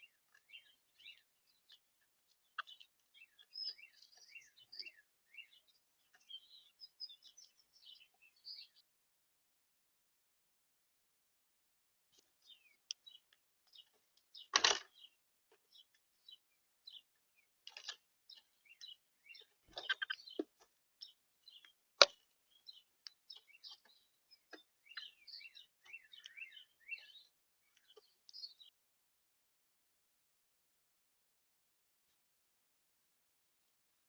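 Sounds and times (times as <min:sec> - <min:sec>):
small birds chirping: 0:00.0 - 0:08.8, 0:12.2 - 0:28.8.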